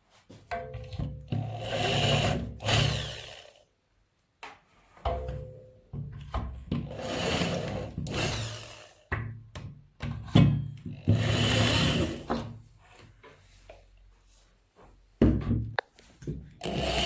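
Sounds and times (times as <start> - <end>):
small power tool running: 1.5 - 3.6, 7.0 - 8.9, 11.2 - 12.2, 16.6 - 17.0.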